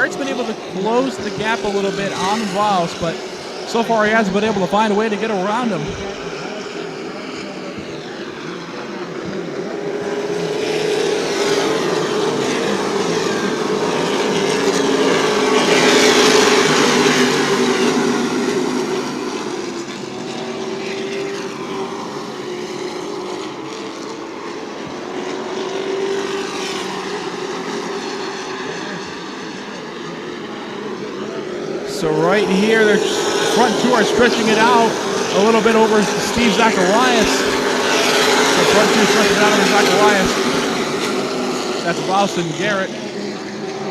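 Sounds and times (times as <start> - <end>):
race truck engines passing: 0.0 - 43.9.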